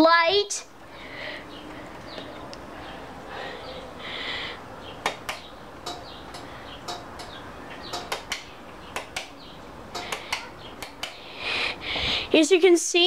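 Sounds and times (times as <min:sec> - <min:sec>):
sharp clicks or taps: 0:05.0 - 0:11.2.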